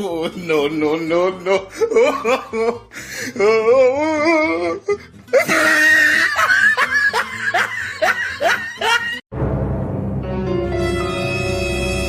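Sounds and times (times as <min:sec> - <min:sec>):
person laughing hard: 0:00.0 - 0:09.2.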